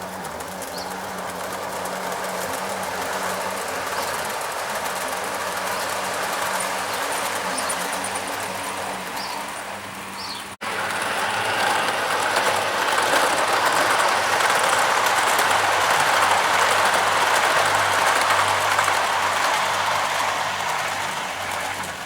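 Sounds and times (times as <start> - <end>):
model locomotive running on rails: 0.0 - 22.0.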